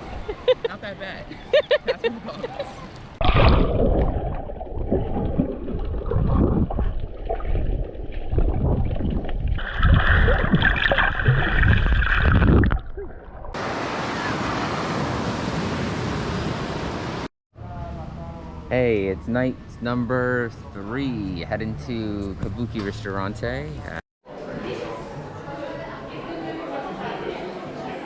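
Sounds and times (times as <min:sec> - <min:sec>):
water sloshing and splashing: 0:03.0 - 0:17.3
surf breaking: 0:13.6 - 0:17.3.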